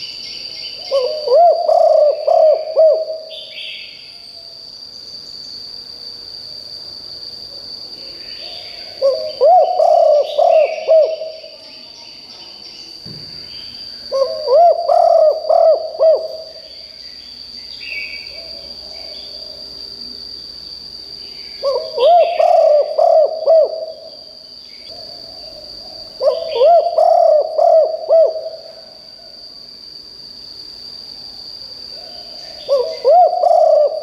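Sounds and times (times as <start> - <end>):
steady high-pitched whine: 0.0 - 34.0
dove cooing: 0.8 - 3.4, 8.9 - 11.5, 14.1 - 16.6, 21.6 - 24.1, 24.9 - 28.8, 32.6 - 34.0.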